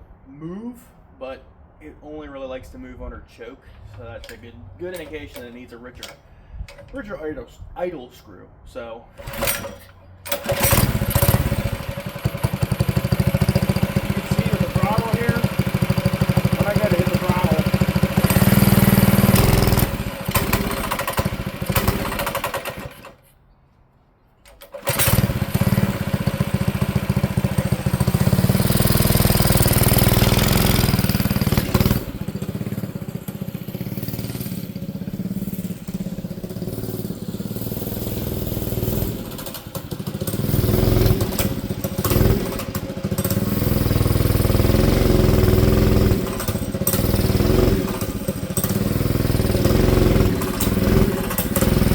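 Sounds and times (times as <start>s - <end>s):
mini bike engine running: 10.3s - 23.1s, 24.7s - 51.9s.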